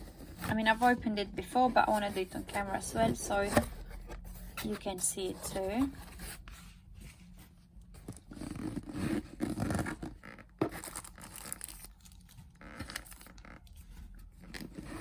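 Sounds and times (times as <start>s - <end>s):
cardboard rustling and tearing: 8.0s - 15.0s.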